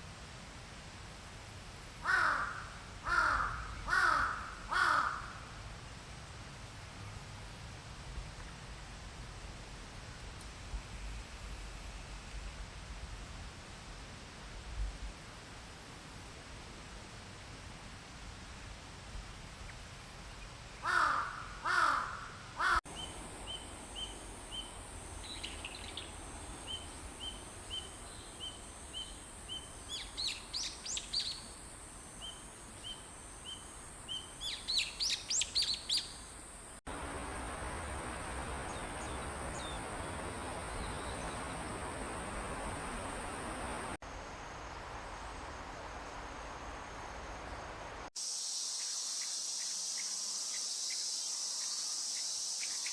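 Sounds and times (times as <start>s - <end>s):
crow cawing: 2.0s - 5.5s, 20.8s - 22.8s
high insect drone: 36.3s - 52.9s.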